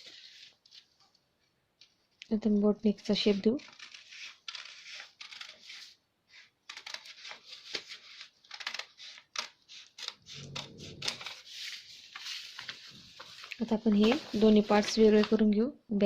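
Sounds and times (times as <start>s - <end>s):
scissors snipping paper: 3.2s - 12.6s.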